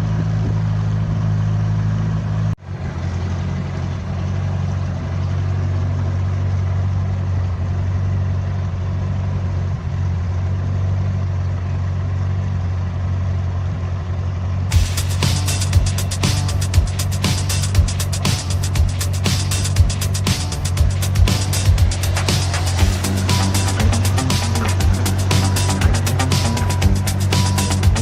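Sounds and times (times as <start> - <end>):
boat engine humming: 14.7 - 28.0.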